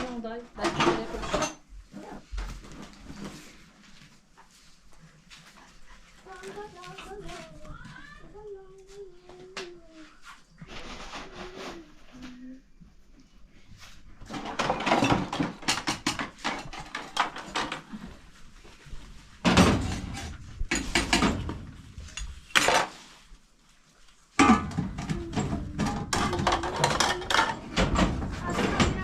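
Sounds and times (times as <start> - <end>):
dishes and cutlery clattering: 0.6 - 1.7, 14.3 - 18.1, 19.4 - 23.0, 24.4 - 29.0.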